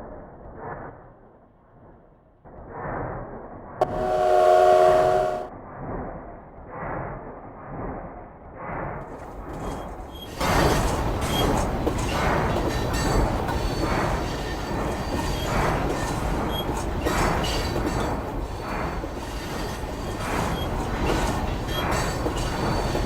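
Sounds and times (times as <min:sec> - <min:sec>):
small locomotive running: 0:03.8 - 0:05.5, 0:09.1 - 0:23.0.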